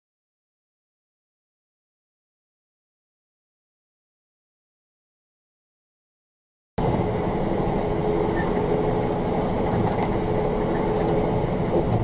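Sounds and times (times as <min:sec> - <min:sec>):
moving vehicle rumble: 0:06.8 - 0:12.0.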